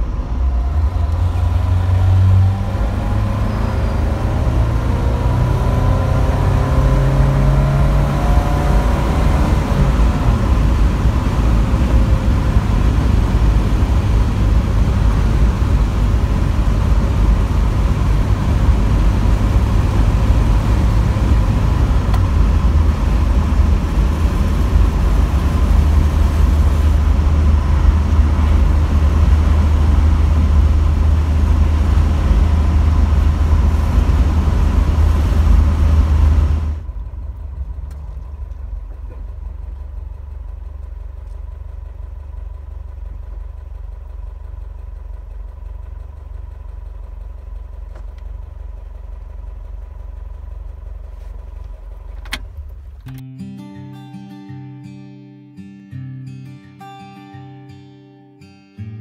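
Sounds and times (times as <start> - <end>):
car engine cruising: 0.0 - 53.2
road noise: 0.0 - 53.2
wind noise: 7.7 - 36.9.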